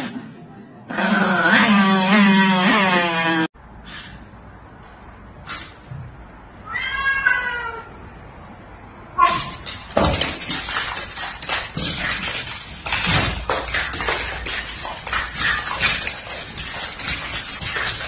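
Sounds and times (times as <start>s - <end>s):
cat meowing: 6.6s - 8.0s
dog and cat scuffling: 9.3s - 18.0s.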